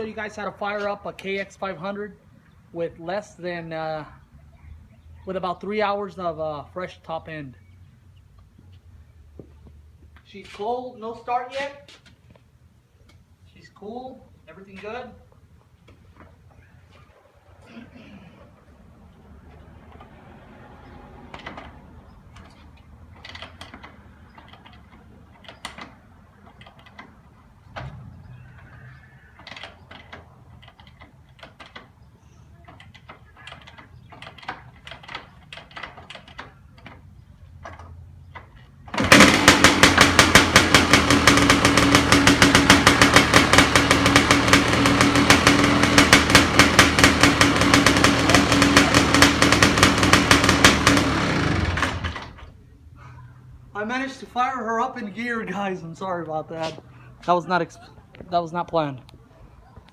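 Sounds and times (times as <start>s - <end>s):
motorcycle kickstarter kicks: 21.2s - 28.8s, 32.6s - 52.5s
two-stroke engine running: 38.9s - 52.4s.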